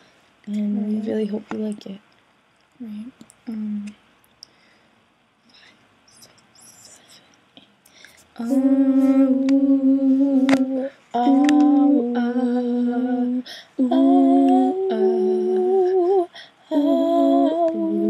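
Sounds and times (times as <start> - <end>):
women humming in harmony: 8.4 - 18.0.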